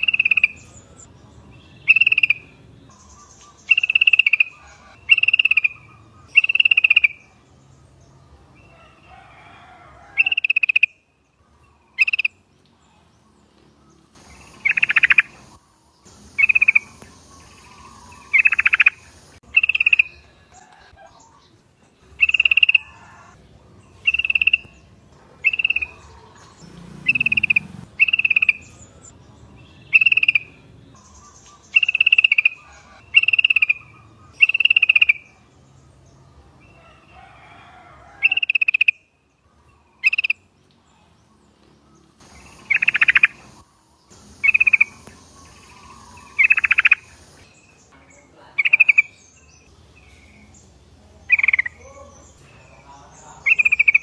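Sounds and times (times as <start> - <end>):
bulbuls calling: 0.0 - 54.0
hiss: 42.2 - 47.5.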